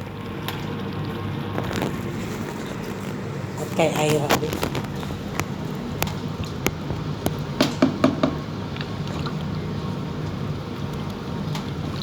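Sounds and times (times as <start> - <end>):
utensil knocking against pan: 7.6 - 8.5.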